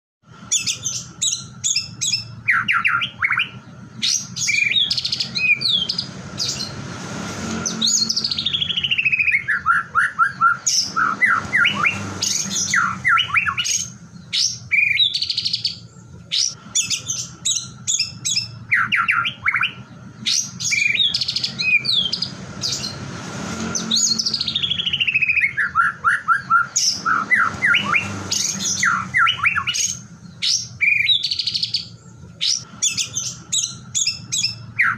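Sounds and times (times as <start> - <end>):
songbird singing whistles and trills: 0.5 - 6.8, 7.7 - 23.0, 23.7 - 34.9.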